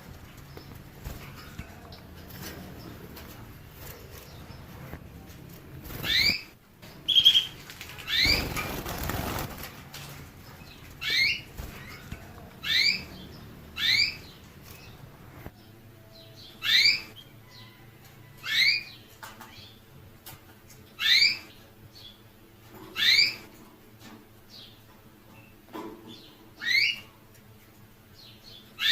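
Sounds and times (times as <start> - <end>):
rustling noise: 0.0 - 15.6.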